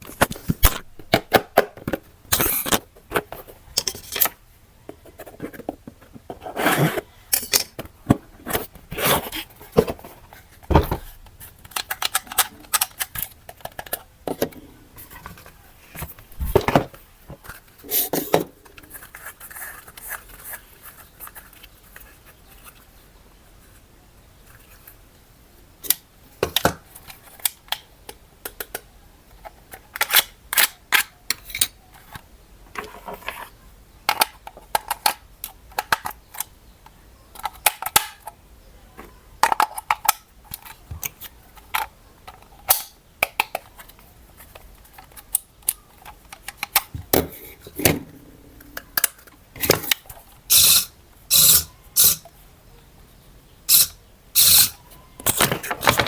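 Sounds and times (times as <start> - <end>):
plastic toy parts clicking: 11.6 - 14.0, 34.1 - 36.5, 37.3 - 38.4, 39.4 - 46.9, 48.7 - 52.3, 53.7 - 56.0.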